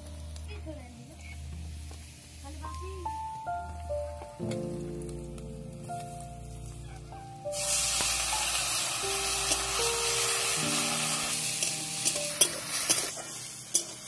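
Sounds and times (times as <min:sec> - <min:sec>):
water sizzling in hot oil: 0:00.0 - 0:14.0
metal ladle clinking on pan: 0:11.6 - 0:14.0.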